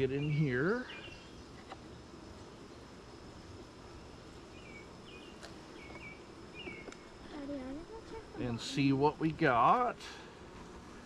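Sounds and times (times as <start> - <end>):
bird chirps: 0.0 - 1.5, 4.5 - 7.1
high faint whine: 0.0 - 11.0
insect buzz: 0.0 - 11.0.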